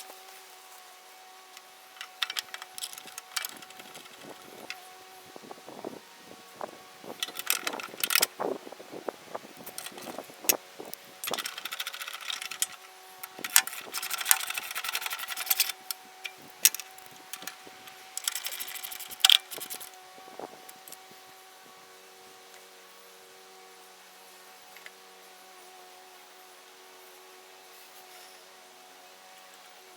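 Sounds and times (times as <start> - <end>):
faint steady hum: 0.0 - 29.9
metal hardware rattling in a container: 1.9 - 4.8, 7.2 - 8.3, 9.6 - 10.3, 11.2 - 19.9.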